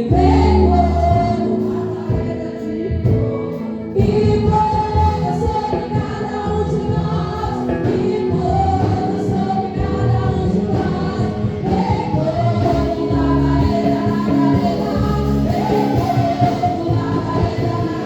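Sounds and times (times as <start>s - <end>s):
band with bass: 0.0s - 18.0s
group singing gospel song: 0.0s - 18.0s.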